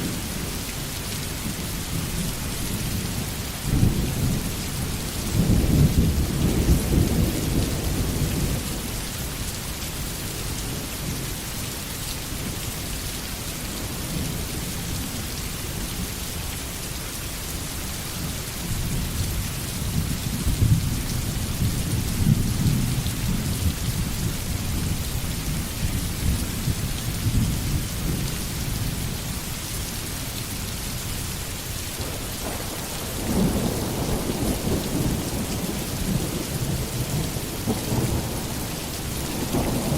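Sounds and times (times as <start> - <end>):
heavy rain hissing: 0.0 - 39.9
thunder rumbling: 32.0 - 39.9.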